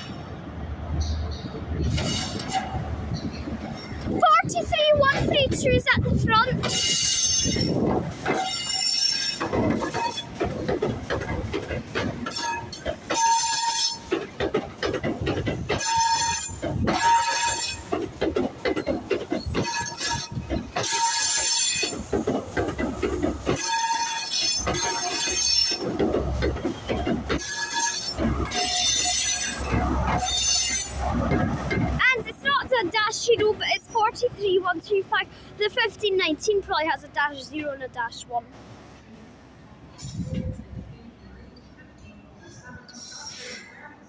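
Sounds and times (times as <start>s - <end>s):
diesel locomotive rumble: 0.0s - 41.6s
train running noise: 0.0s - 44.0s
train wheels squealing on rails: 0.9s - 5.8s, 6.4s - 32.0s, 39.9s - 44.0s.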